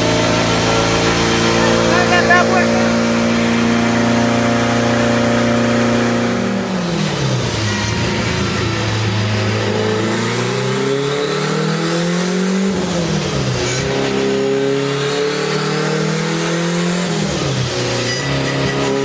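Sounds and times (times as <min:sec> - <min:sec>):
turbocharged engine revving: 0:00.0 - 0:19.0.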